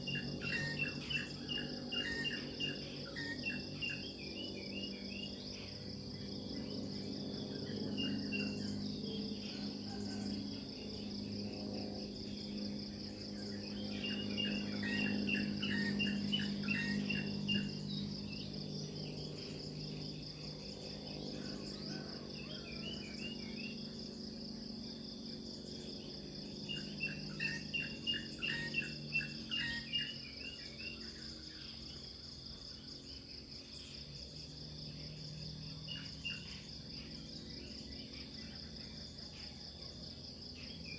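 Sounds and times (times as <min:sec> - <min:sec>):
crickets trilling: 0:00.0 - 0:40.9
low steady hum: 0:00.0 - 0:40.9
birds chirping: 0:13.4 - 0:18.5.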